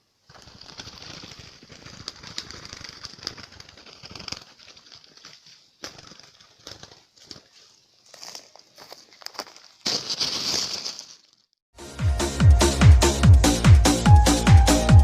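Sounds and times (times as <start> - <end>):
doves flapping and scuffling: 0.3 - 7.8.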